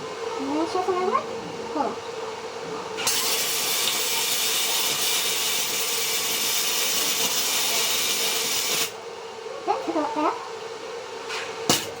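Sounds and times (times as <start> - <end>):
arc welder hissing: 3.0 - 9.0.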